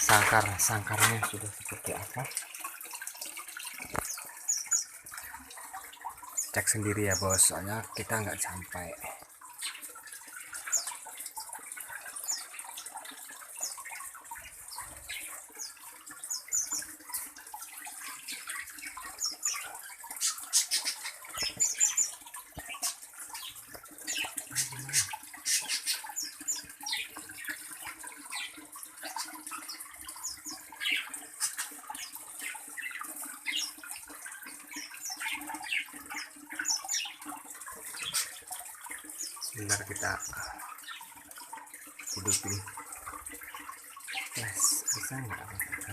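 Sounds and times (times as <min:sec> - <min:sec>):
small birds chirping: 0:03.6 - 0:41.2, 0:41.8 - 0:45.9.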